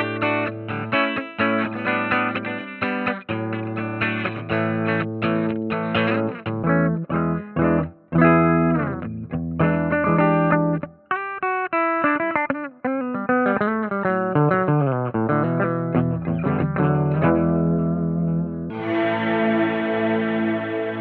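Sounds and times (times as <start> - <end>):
electric guitar playing: 0.0 - 21.0.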